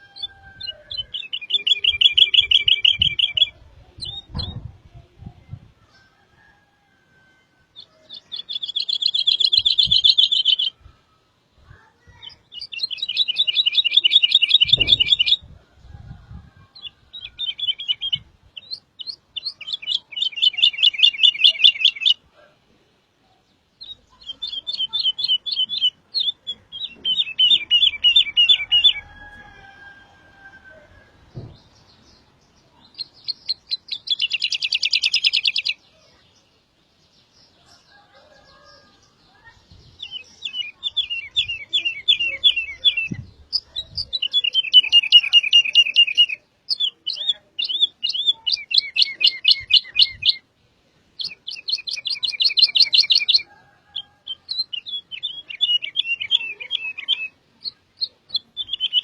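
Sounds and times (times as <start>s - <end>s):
songbird trilling: 0.0s - 4.6s, 7.8s - 10.8s, 12.0s - 15.4s, 23.8s - 29.8s, 32.7s - 35.8s, 40.0s - 50.4s, 51.2s - 59.0s.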